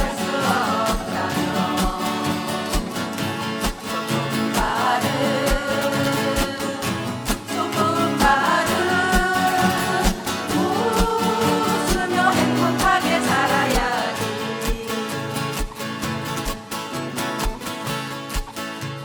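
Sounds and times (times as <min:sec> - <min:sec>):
steady thumping beat: 0:00.0 - 0:14.0
person singing: 0:00.0 - 0:15.8
guitar: 0:00.0 - 0:19.0.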